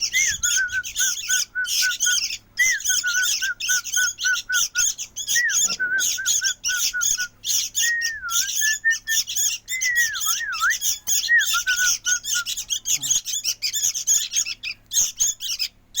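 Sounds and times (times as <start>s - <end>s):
bird chicks squawking: 0.0s - 16.0s.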